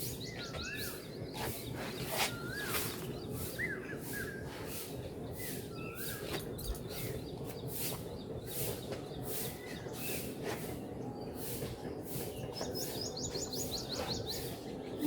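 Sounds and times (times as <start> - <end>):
small birds chirping: 0.0 - 15.0
scratchy rustling strokes: 1.4 - 3.0.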